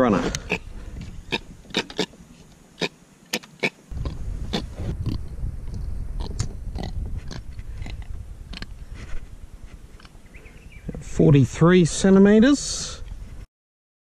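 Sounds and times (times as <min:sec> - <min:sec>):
low background rumble: 0:03.8 - 0:11.2.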